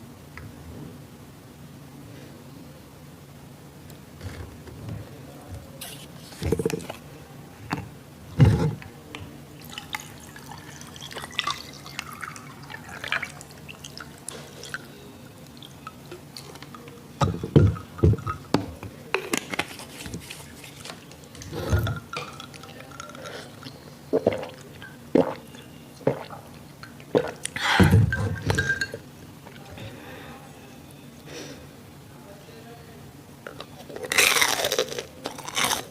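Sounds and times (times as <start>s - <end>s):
crunchy bites: 34.0s - 35.9s.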